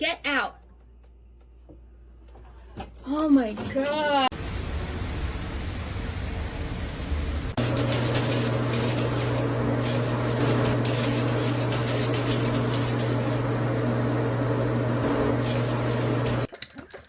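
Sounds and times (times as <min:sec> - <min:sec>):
machine hum: 0:04.3 - 0:16.5.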